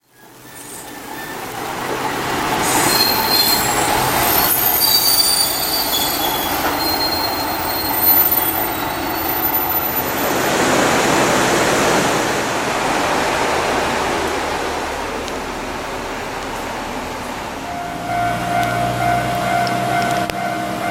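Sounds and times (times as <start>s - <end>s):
wheels squealing: 0.0s - 10.5s
railcar rumbling on track: 0.0s - 20.9s.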